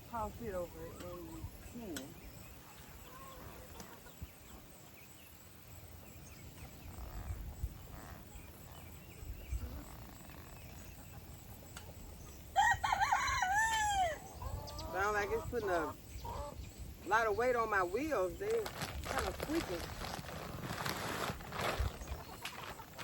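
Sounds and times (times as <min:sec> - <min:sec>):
soft chicken calls: 0:00.9 - 0:04.7, 0:09.1 - 0:16.6.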